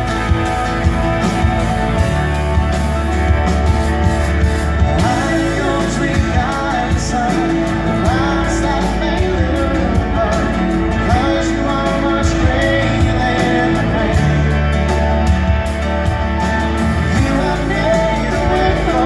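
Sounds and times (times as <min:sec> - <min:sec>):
rock band playing: 0:00.0 - 0:19.0
man singing lead vocal: 0:04.9 - 0:19.0.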